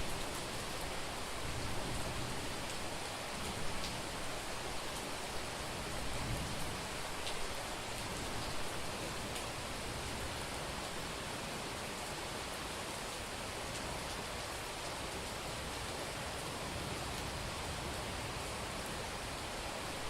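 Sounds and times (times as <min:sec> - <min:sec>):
heavy rain on a street: 0:00.0 - 0:20.0
faint raindrop ticks: 0:02.6 - 0:04.1, 0:06.5 - 0:08.6, 0:09.3 - 0:09.6.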